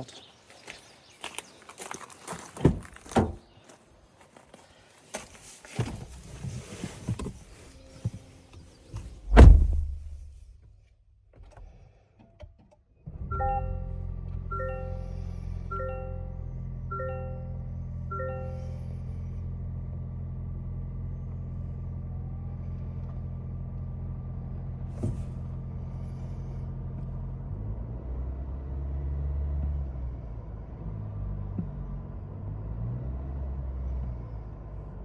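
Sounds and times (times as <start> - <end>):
car engine idling: 7.5 - 10.7.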